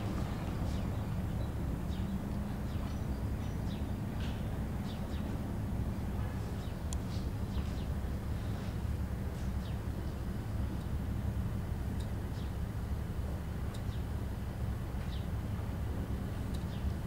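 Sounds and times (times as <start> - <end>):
small birds chirping: 0.0 - 5.5, 6.2 - 10.9, 12.0 - 12.6, 13.7 - 14.1, 15.0 - 15.4, 16.4 - 17.0
steady low rumble: 0.0 - 17.0.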